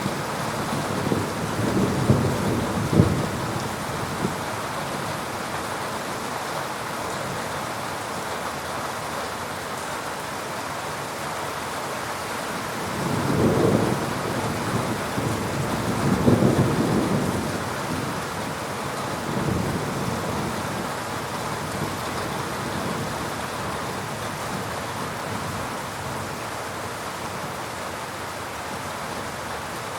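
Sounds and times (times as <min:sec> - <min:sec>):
heavy rain: 0:00.0 - 0:29.9
rolling thunder: 0:00.7 - 0:04.4, 0:13.0 - 0:18.2.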